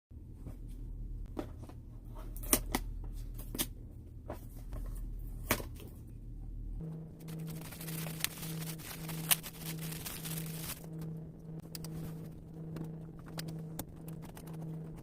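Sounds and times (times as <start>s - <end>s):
small electric fan motor hum: 5.0s - 15.0s.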